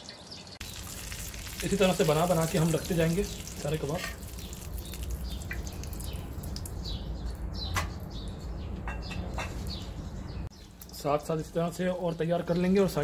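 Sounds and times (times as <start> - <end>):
oil frying faintly: 0.0 - 7.4
bird chirps: 3.2 - 10.9.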